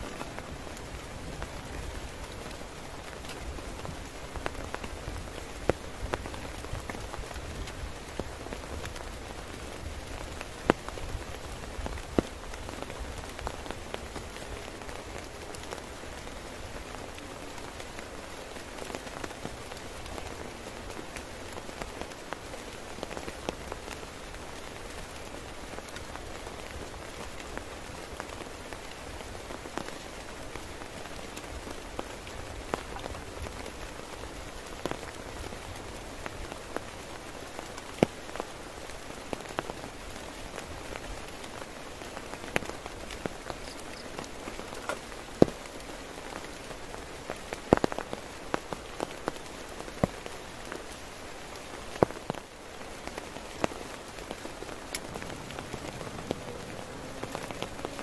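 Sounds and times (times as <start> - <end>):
rain hissing on tent: 0.0 - 58.0
raindrops striking fabric: 0.0 - 58.0.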